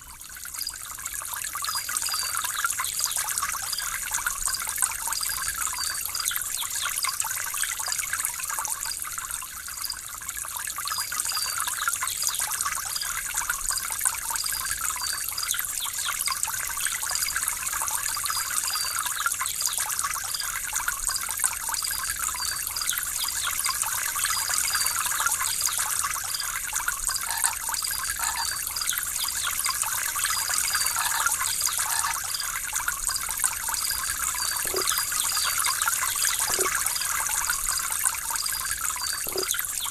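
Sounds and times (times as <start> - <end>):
water trickling and splashing: 0.0 - 39.9
faint high chirps: 33.8 - 37.5.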